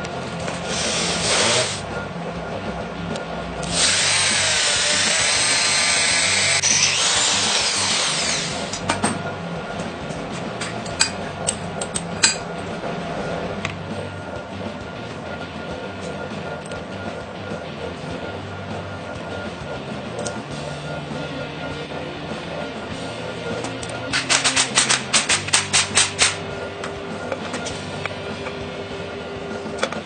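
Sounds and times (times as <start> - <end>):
handheld power tool running: 0.0 - 1.9, 3.6 - 9.1, 23.7 - 26.5
sharp metallic clicks and taps: 9.8 - 12.4, 23.6 - 26.4.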